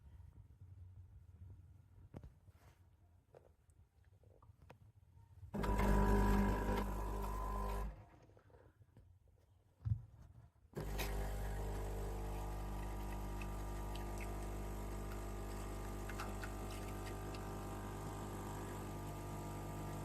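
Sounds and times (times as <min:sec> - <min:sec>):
espresso machine pump humming: 0:05.6 - 0:07.9, 0:10.8 - 0:20.0.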